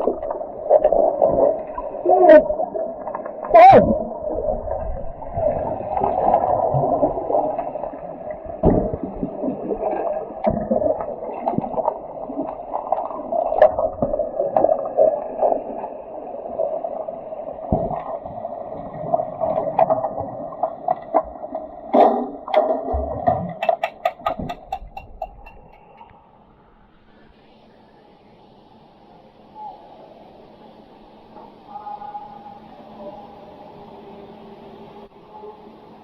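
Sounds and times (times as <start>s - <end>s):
underwater bubbling water: 0.0s - 36.0s
sharp knocks: 21.9s - 25.8s.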